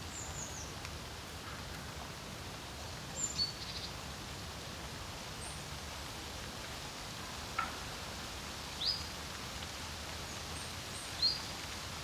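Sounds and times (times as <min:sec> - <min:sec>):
wind with low rumble: 0:00.0 - 0:12.0.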